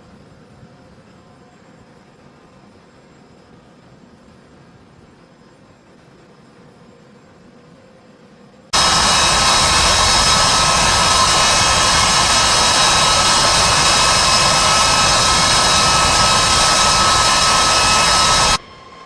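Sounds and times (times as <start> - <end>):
high-pitched turbine whine: 0.0 - 19.0
jet engines roaring: 8.8 - 19.0.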